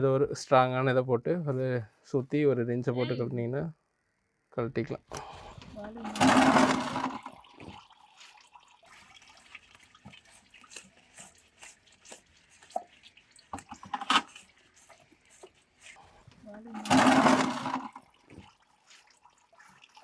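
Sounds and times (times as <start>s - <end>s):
oil pouring and dripping: 5.2s - 20.0s.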